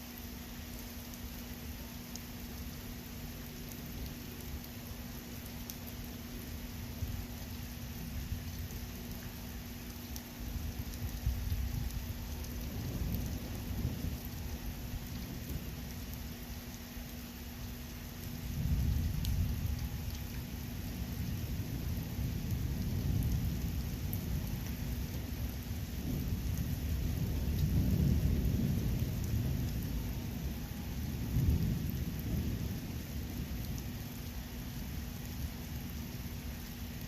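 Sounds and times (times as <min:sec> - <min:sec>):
steady rain: 0:00.0 - 0:37.0
thunder rumbling: 0:11.0 - 0:15.8, 0:18.5 - 0:33.9.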